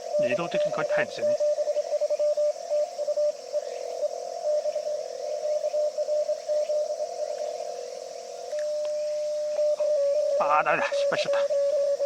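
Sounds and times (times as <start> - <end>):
overlapping morse signals: 0.0 - 7.0, 8.6 - 12.0.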